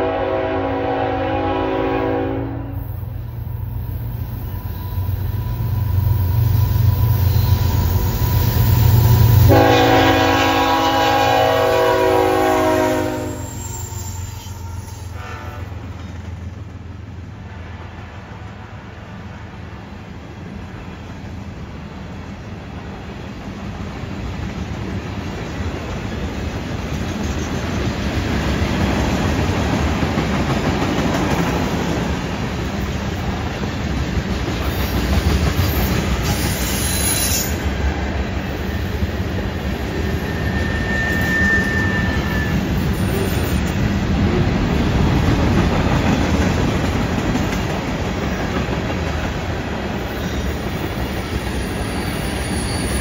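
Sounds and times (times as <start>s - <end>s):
wheel flange squealing: 13.3s - 15.2s, 40.0s - 43.7s
steel wheels clattering on rail: 23.8s - 37.8s, 38.4s - 53.0s.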